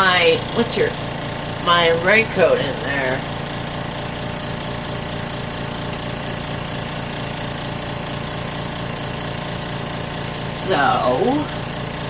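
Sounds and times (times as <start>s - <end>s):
spin dryer motor hum: 0.0s - 12.0s.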